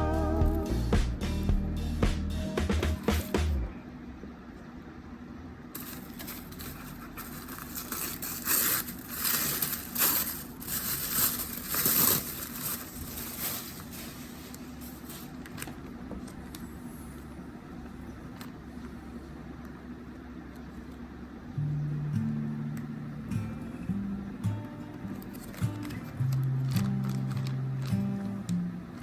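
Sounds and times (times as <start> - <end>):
packaging crinkling and scraping: 5.8 - 16.6, 25.2 - 28.6.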